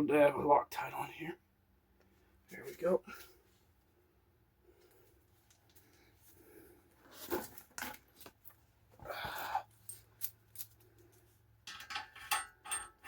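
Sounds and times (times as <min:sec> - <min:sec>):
metal tools clinking: 0:09.7 - 0:13.0.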